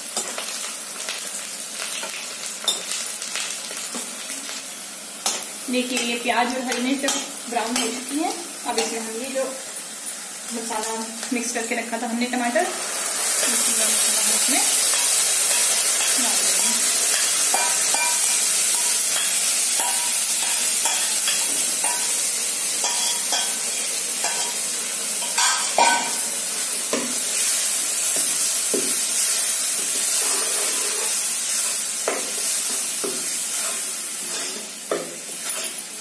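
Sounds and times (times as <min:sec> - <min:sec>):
masala sizzling in hot oil: 0:00.0 - 0:36.0
steel ladle scraping a pan: 0:29.9 - 0:32.2, 0:33.5 - 0:34.8.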